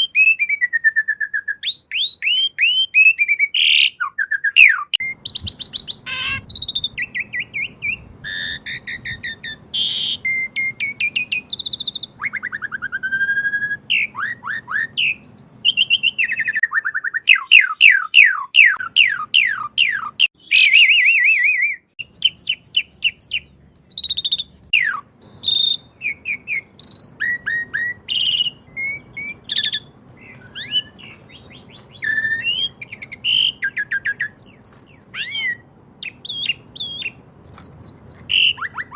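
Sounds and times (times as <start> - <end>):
starling singing: 1.6 - 38.9.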